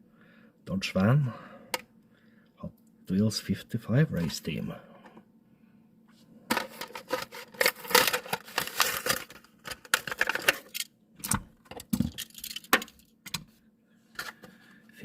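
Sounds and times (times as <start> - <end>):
crackling plastic and card: 6.5 - 13.4.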